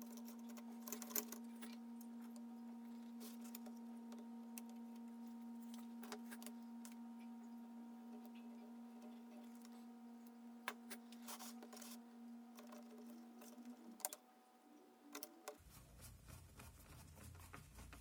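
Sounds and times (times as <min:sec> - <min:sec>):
small parts clicking and tapping: 0:00.0 - 0:02.4, 0:08.1 - 0:15.6
faint electrical hum: 0:00.0 - 0:18.0.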